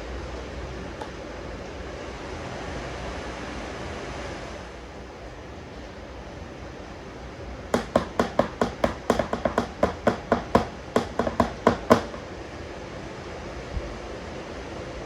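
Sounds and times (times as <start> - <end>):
sharp hard taps: 7.8 - 12.4.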